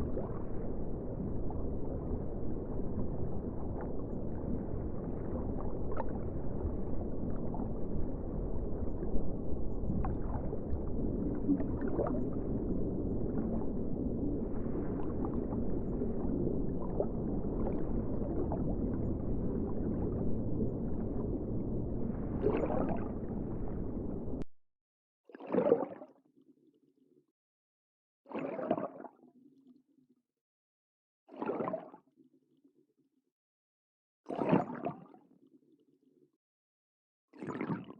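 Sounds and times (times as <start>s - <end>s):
underwater water rushing: 0.0s - 24.4s.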